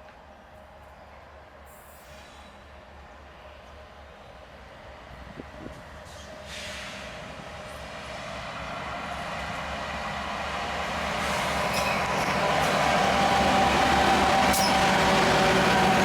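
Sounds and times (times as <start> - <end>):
rail and wheel noise: 0.0 - 16.0
locomotive engine hum: 8.8 - 16.0.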